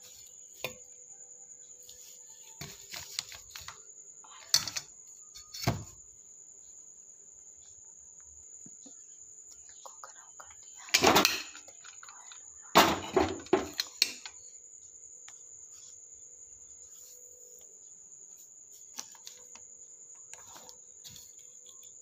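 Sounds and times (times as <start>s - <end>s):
cricket trill: 0.0s - 22.0s
kitchen utensils knocking: 11.0s - 11.6s, 12.8s - 14.2s.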